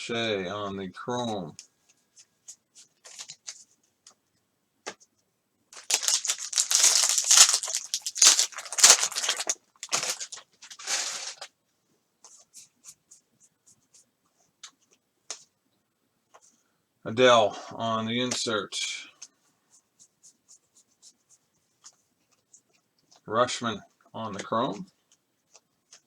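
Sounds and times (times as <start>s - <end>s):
wrapper tearing and crinkling: 5.8s - 11.5s.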